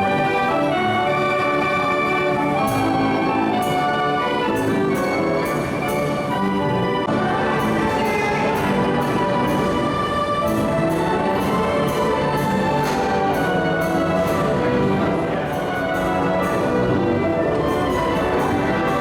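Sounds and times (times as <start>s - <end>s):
carousel band organ tune: 0.0s - 19.0s.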